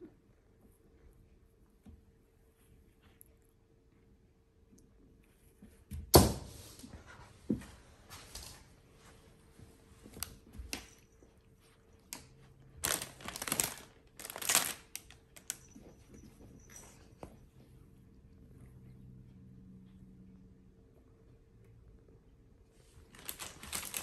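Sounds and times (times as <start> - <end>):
packaging rustling and crinkling: 12.8 - 15.7, 23.1 - 24.0.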